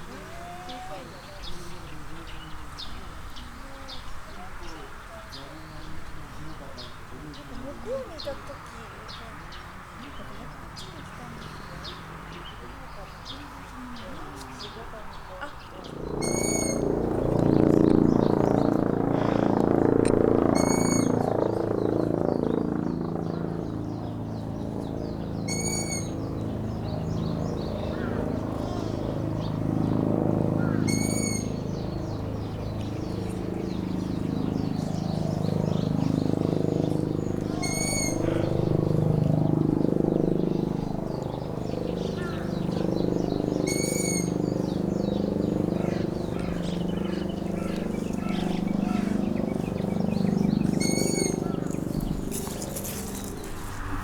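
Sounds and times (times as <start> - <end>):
owl calling: 16.2 - 17.0, 18.1 - 19.7, 20.5 - 21.3, 25.5 - 26.2, 30.6 - 31.6, 37.5 - 38.7, 43.6 - 44.4, 45.8 - 53.3.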